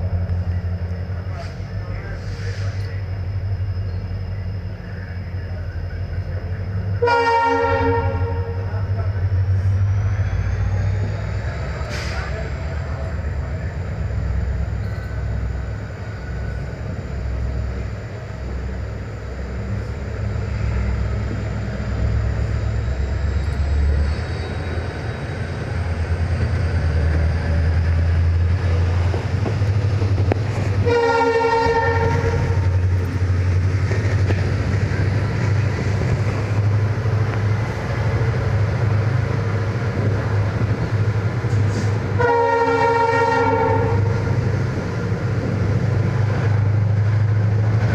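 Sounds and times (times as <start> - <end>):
train coaches rumbling on track: 0.0 - 47.9
locomotive horn: 7.0 - 8.7, 30.8 - 32.9, 42.0 - 44.3.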